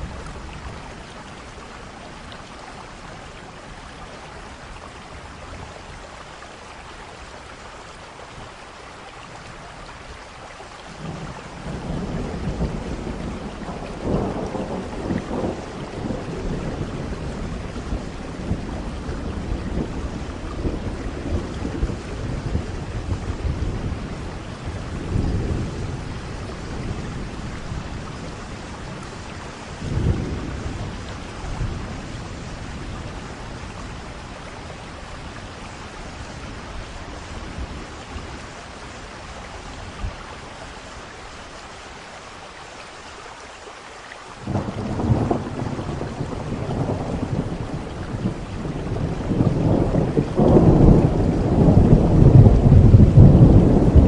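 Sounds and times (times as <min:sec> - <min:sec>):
rain falling: 0:00.0 - 0:54.0
loud thunderclap: 0:11.0 - 0:28.2, 0:29.8 - 0:32.9, 0:44.4 - 0:54.0
thunder rumbling: 0:11.0 - 0:40.2, 0:44.4 - 0:54.0.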